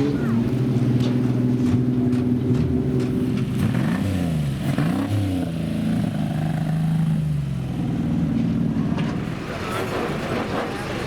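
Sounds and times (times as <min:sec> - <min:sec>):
racing car engines revving: 0:00.0 - 0:11.0.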